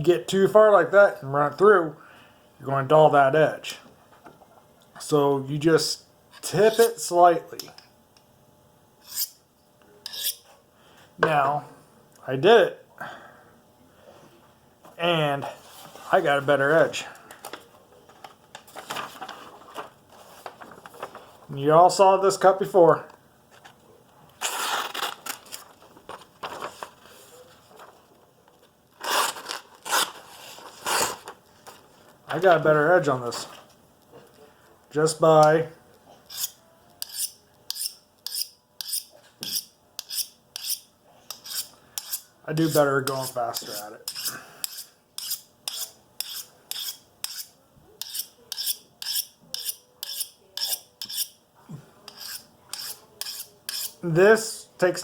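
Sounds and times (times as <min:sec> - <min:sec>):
knife scraping on sharpening rod: 0:09.0 - 0:09.4, 0:10.0 - 0:10.5, 0:36.3 - 0:51.4, 0:52.1 - 0:54.0.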